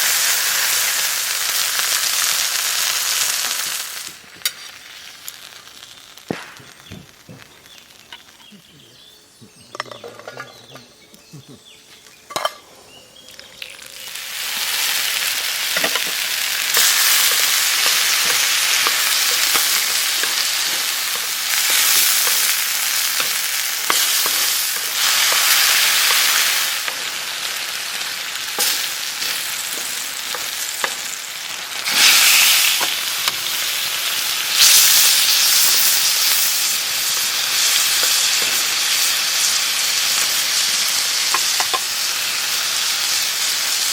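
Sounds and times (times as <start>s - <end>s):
food sizzling in a pan: 0.0s - 10.3s, 11.9s - 43.9s.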